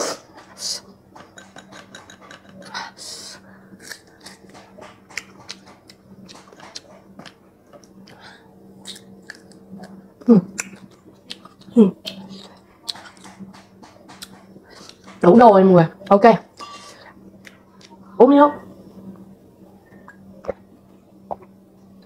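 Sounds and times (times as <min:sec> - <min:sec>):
faint steady hum: 0:00.0 - 0:22.0
crunching and chewing: 0:03.8 - 0:15.1.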